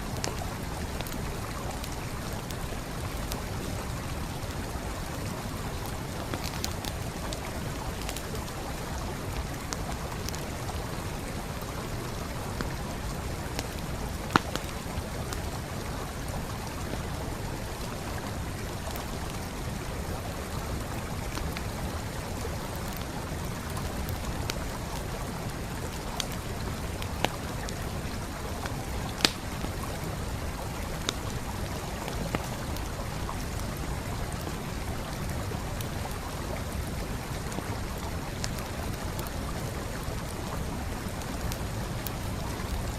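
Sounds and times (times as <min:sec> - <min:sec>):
campfire crackling and popping: 0:00.0 - 0:42.9
stream flowing: 0:00.0 - 0:42.9.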